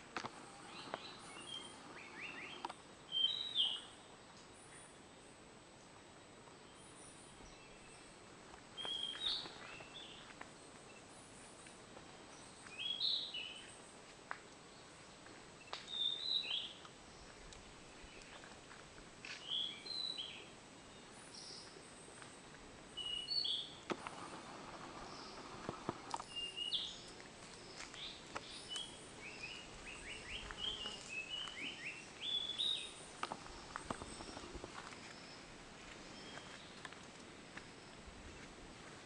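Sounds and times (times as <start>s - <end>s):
faint high bird chirps: 8.8s - 10.3s.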